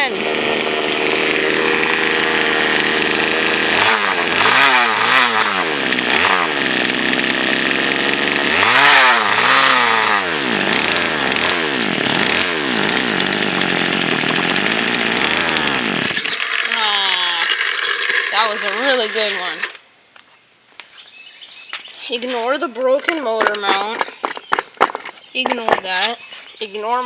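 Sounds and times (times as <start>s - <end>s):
chainsaw engine revving: 0.0s - 19.8s, 22.6s - 26.2s.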